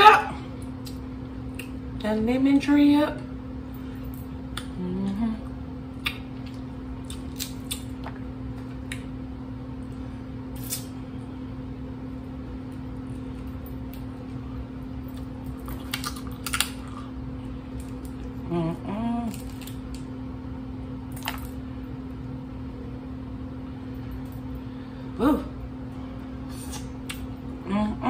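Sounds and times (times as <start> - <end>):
steady low hum: 0.0 - 28.0
person humming: 4.7 - 5.6, 18.4 - 19.4, 25.2 - 25.6.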